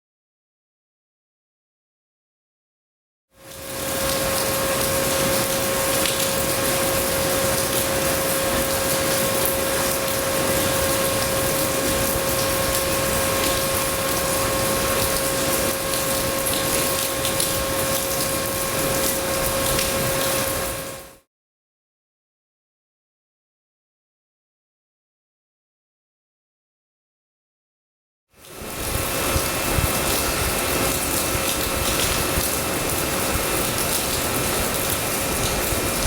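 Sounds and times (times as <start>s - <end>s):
heavy rain: 3.4s - 21.1s, 28.5s - 36.0s.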